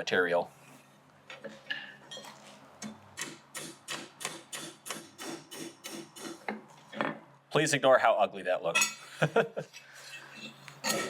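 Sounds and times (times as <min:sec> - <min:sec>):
hammer striking steel on anvil: 0:03.2 - 0:06.4.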